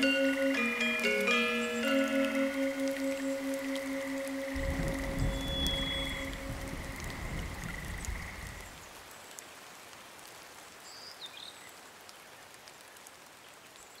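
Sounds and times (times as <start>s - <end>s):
water drips: 0.0s - 10.5s
rain patter: 0.0s - 14.0s
bird-like chirp: 1.5s - 8.7s.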